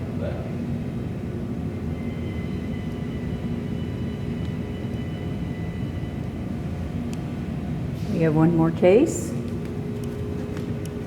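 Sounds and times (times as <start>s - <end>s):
low mechanical rumble: 0.0s - 11.0s
faint high tones: 1.9s - 7.0s.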